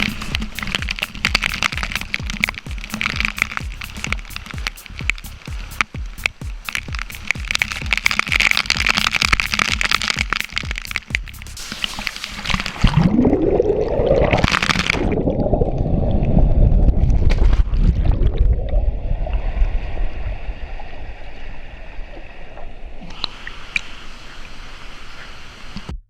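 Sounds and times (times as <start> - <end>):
waterfall rushing: 0.0 - 13.1.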